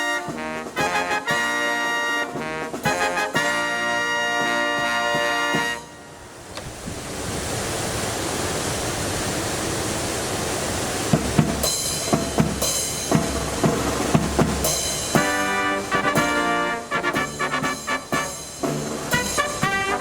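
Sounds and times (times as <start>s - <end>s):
marching band drums: 0.0s - 6.0s, 11.1s - 20.0s
brass playing: 0.0s - 6.3s, 13.4s - 20.0s
wind on microphone: 5.9s - 11.6s.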